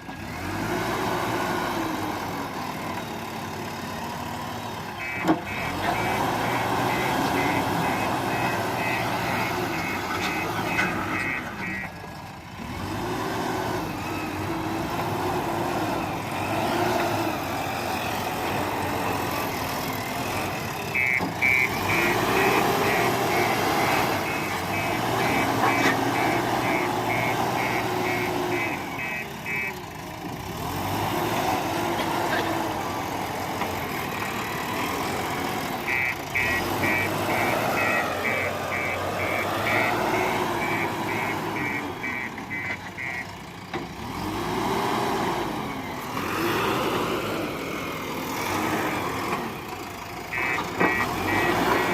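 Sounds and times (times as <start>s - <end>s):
backhoe diesel engine revving: 0.0s - 51.9s
reversing alarm beeping: 4.9s - 12.0s, 13.8s - 29.9s, 35.7s - 43.3s.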